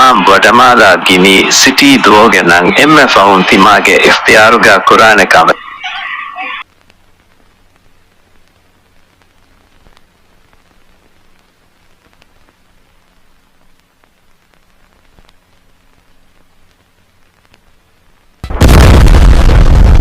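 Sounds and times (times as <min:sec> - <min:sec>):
faint crackling hiss: 0:00.0 - 0:20.0
loud sustained boom: 0:18.4 - 0:20.0.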